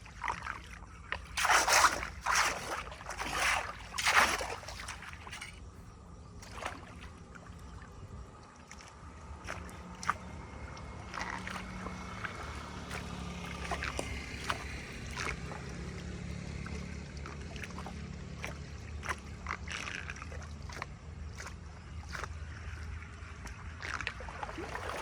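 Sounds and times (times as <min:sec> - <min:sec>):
water splashes and gurgles: 0:00.0 - 0:25.0
flood water rushing: 0:24.2 - 0:25.0.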